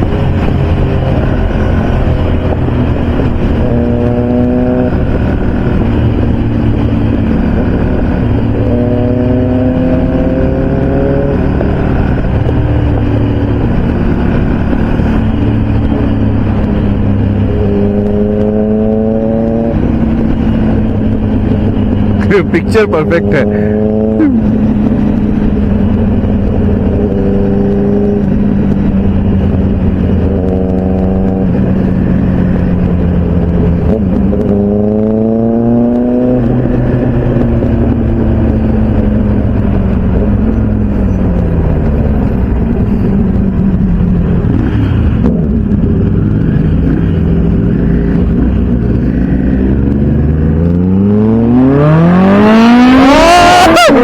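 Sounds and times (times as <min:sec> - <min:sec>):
motorcycle engines cruising: 0:00.0 - 0:54.0
wind noise: 0:00.0 - 0:54.0
engine revving hard: 0:50.5 - 0:54.0.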